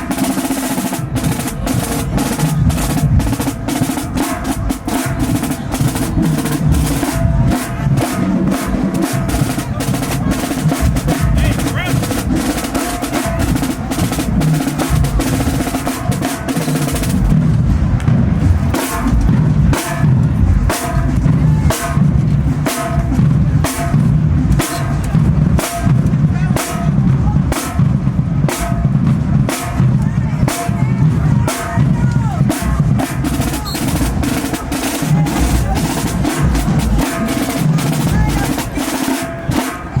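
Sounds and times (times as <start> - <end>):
bass drum hits: 16.9 - 33.0.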